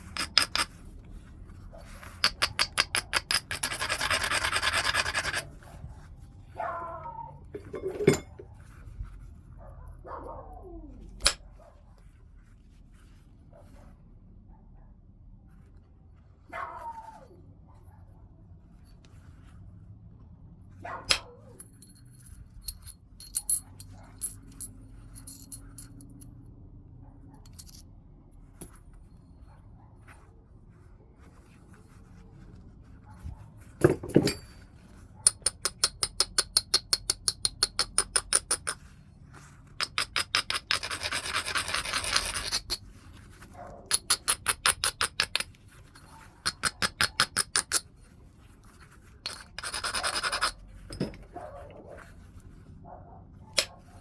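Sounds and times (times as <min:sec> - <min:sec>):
stone scraping stone edge: 0:00.0 - 0:00.8, 0:02.2 - 0:05.6, 0:07.5 - 0:08.5, 0:39.8 - 0:42.8, 0:43.9 - 0:47.9, 0:49.2 - 0:51.3.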